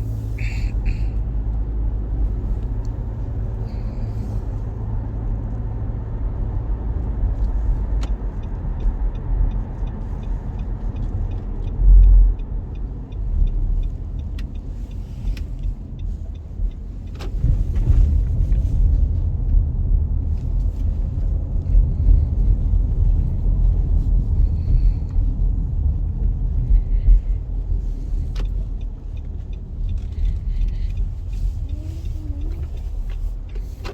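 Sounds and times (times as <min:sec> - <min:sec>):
road and tyre rumble: 0:00.0 - 0:33.9
light even ticks: 0:07.2 - 0:19.7, 0:20.3 - 0:33.9.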